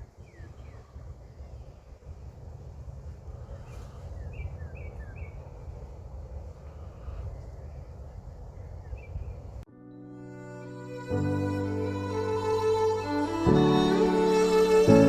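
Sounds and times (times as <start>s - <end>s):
bird chirping: 0.0s - 2.0s, 3.4s - 5.9s, 6.6s - 10.0s
low outdoor rumble: 0.0s - 9.7s.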